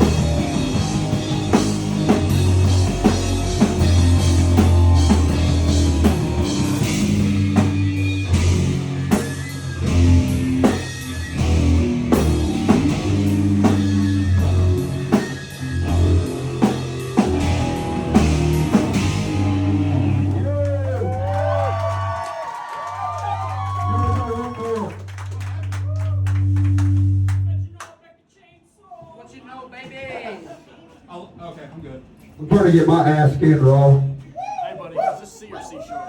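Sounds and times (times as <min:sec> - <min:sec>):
drum kit hitting hard: 0:00.0 - 0:20.0
distorted guitar and bass chords: 0:00.0 - 0:20.6, 0:25.2 - 0:27.6.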